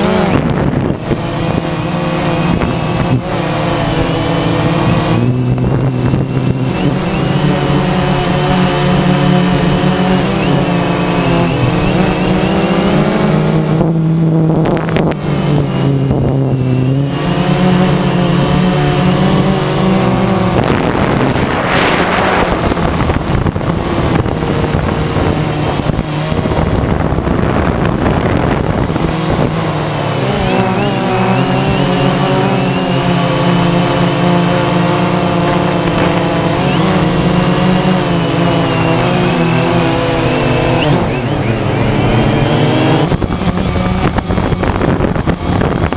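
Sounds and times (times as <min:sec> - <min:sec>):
drone propellers buzzing: 0:00.0 - 0:45.9
rush of noise: 0:00.0 - 0:45.9.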